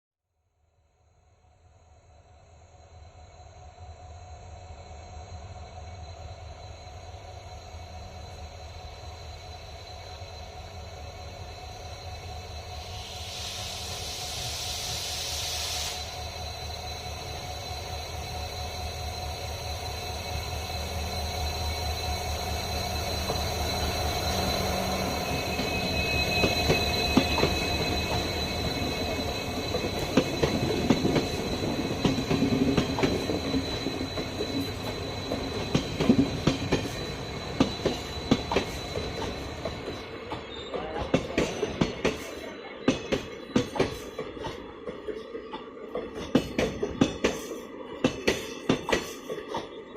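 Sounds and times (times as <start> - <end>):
high-pitched wheel squeal: 15.8 - 40.9
train wheels clicking over joints: 23.1 - 49.9.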